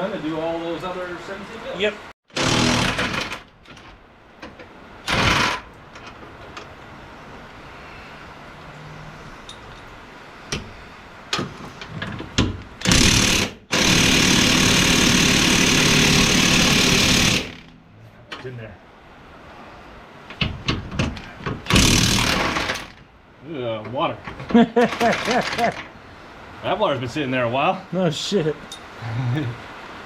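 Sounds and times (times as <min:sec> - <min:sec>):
impact wrench hammering on bolts: 0:02.3 - 0:03.4, 0:12.4 - 0:17.7, 0:20.4 - 0:22.9
tool clicks and clatter: 0:20.7 - 0:23.0, 0:24.3 - 0:25.9.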